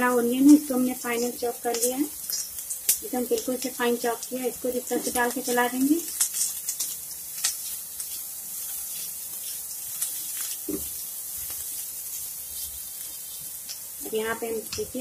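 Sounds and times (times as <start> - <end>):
vegetables sizzling in oil: 0.0 - 15.0
spatula scraping and tapping pan: 0.4 - 3.6, 6.1 - 13.9.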